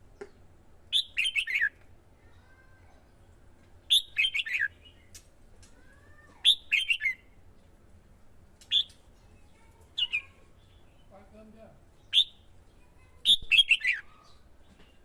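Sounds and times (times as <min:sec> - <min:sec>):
bird singing sharp notes: 0:06.4 - 0:07.2, 0:12.0 - 0:12.5, 0:13.3 - 0:14.4.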